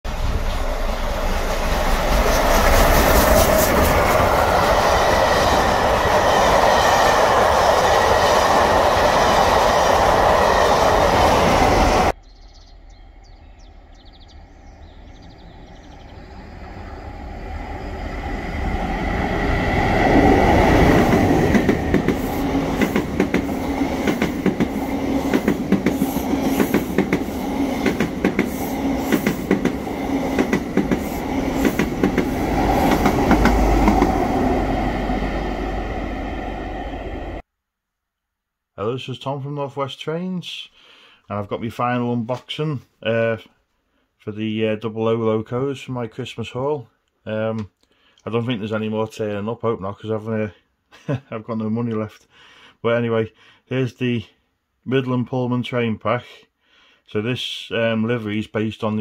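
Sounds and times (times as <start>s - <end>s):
train engine drone: 0.1s - 37.4s
train passing: 0.1s - 37.4s
wheels clacking over rail joints: 19.6s - 34.6s.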